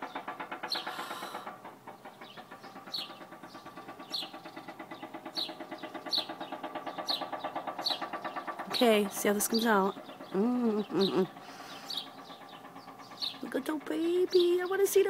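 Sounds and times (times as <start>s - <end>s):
construction drilling: 0.0s - 1.6s.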